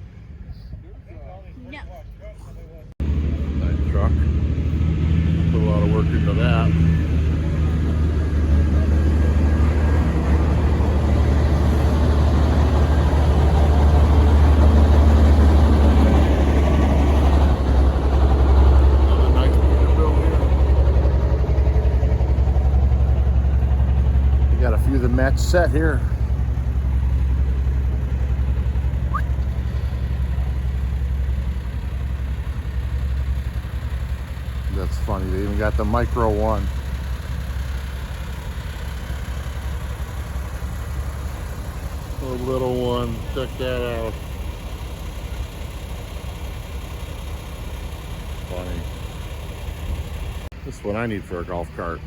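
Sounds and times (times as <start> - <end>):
diesel truck engine rumbling: 0.0 - 52.0
short rising chirp: 29.0 - 30.3.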